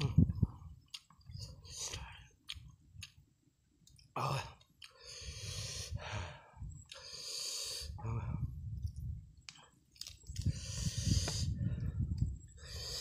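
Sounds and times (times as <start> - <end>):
man chewing: 0.6 - 5.3, 8.9 - 10.8.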